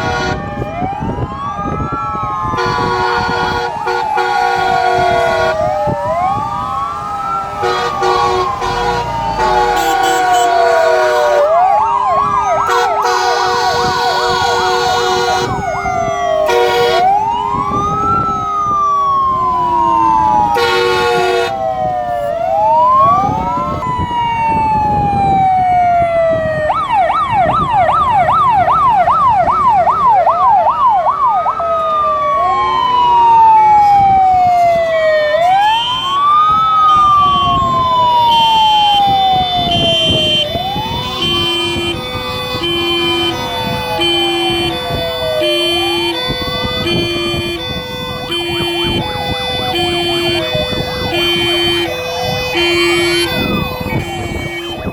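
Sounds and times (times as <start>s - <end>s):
blaring horn blasts: 0.0s - 0.7s, 2.5s - 6.4s, 7.5s - 11.8s, 12.6s - 18.4s, 19.6s - 21.8s, 38.2s - 54.9s
fire truck sirens wailing: 0.0s - 54.9s
siren yelping fast: 0.0s - 54.9s.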